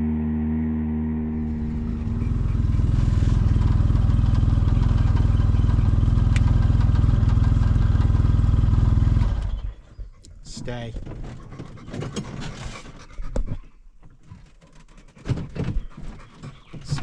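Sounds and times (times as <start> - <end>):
vehicle engine idling: 1.2 - 10.0.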